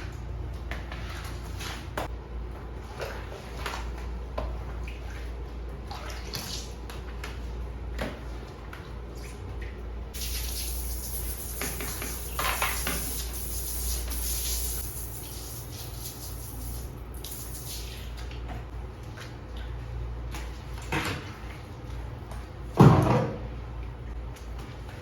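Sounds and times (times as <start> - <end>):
tap water running and splashing: 10.2 - 18.6.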